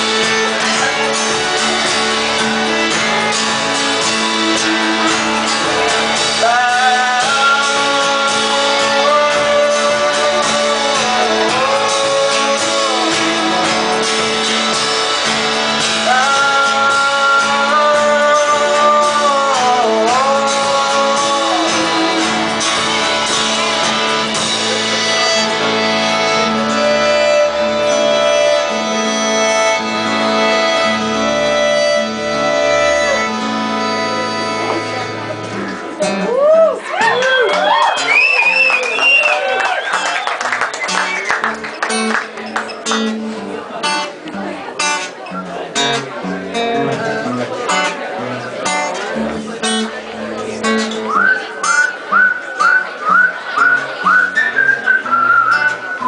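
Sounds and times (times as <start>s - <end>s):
sliding melody line: 0.0s - 36.0s
live folk band playing: 0.0s - 56.0s
strummed guitar: 0.0s - 56.0s.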